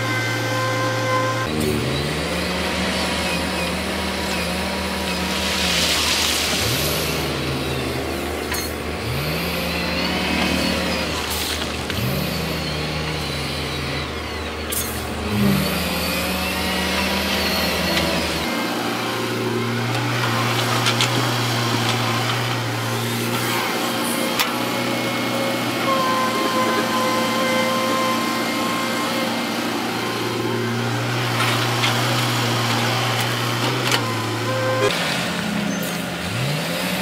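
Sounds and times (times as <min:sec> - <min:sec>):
heavy diesel machinery engine revving: 0:00.0 - 0:37.0.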